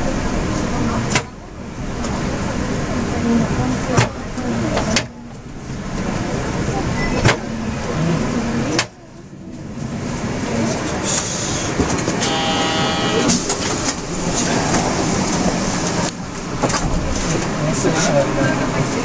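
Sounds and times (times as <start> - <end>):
train tyres rumbling: 0.0 - 19.0
steady high tone: 12.2 - 13.6.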